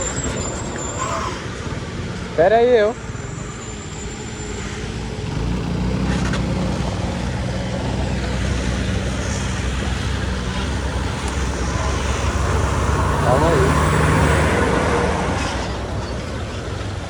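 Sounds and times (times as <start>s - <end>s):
wind and road noise: 0.0s - 17.0s
motorcycle engine running: 4.9s - 17.0s.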